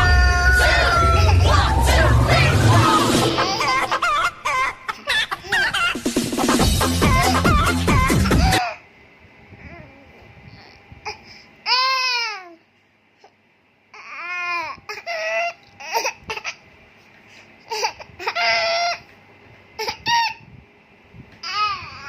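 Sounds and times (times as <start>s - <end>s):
person imitating rooster crow: 0.0s - 1.5s.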